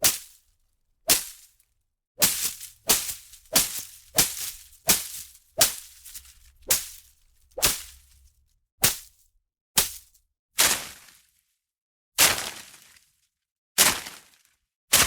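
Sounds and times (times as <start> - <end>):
swishing hits on foliage: 0.0 - 0.4, 1.1 - 1.5, 2.2 - 8.2, 8.8 - 9.2, 9.8 - 11.1, 12.2 - 12.8.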